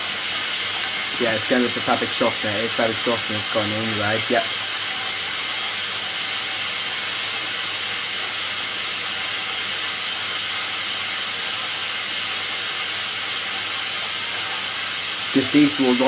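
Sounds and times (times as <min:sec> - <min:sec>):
water running into washing machine: 0:00.0 - 0:16.0.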